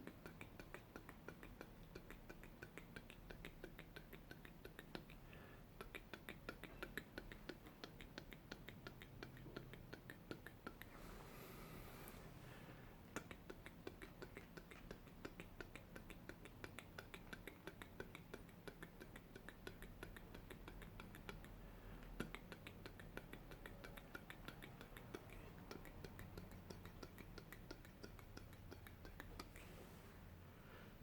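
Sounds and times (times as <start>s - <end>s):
rapid close-miked clicking: 13.2s - 29.7s.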